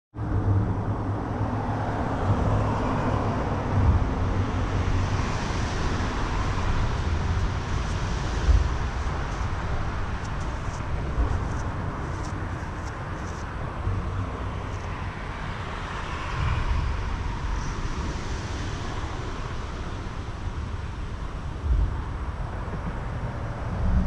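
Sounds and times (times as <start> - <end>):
road traffic rumble: 0.2 - 24.0
low bumps: 2.2 - 14.9.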